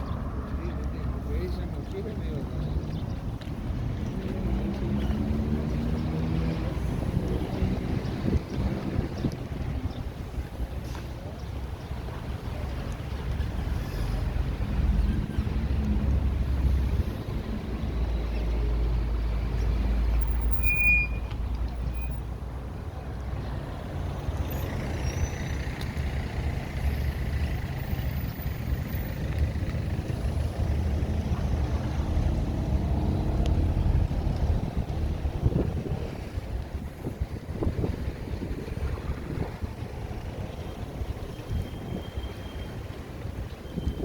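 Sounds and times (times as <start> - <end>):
vehicle rumbling past: 0.0 - 11.3, 21.8 - 41.6
heavy vehicle engine rumble: 0.0 - 44.0.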